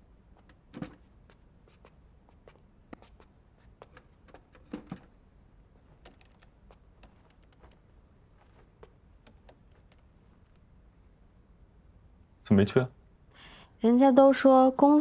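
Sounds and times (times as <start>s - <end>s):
light clicks and taps: 5.7s - 10.7s.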